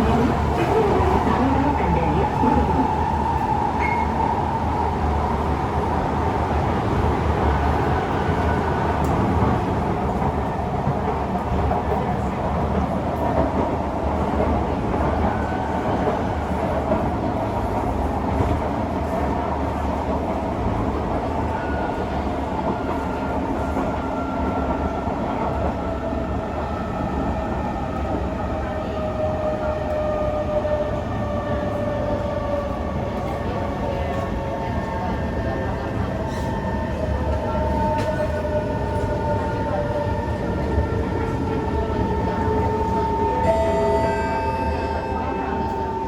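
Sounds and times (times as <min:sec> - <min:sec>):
train wheels rumbling on rails: 0:00.0 - 0:46.0.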